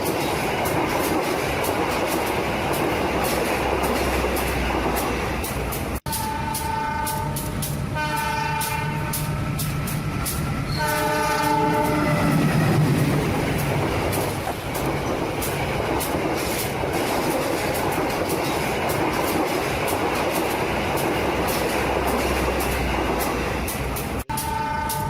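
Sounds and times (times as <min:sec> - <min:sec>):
wheels clattering on rail joints: 0:00.0 - 0:25.0
train horn: 0:06.1 - 0:09.4, 0:10.7 - 0:12.5, 0:24.3 - 0:25.0.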